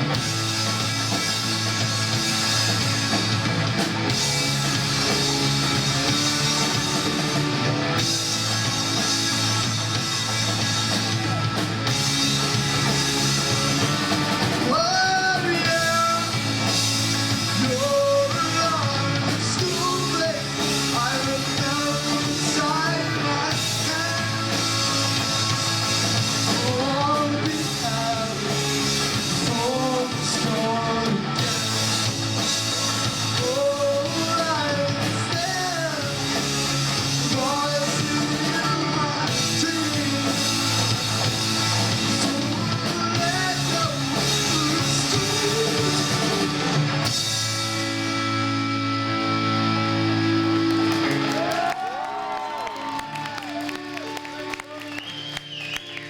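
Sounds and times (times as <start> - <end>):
live rock band playing: 0.0 - 56.0
person singing: 14.6 - 16.4, 17.5 - 31.8, 33.3 - 40.9, 41.9 - 46.6.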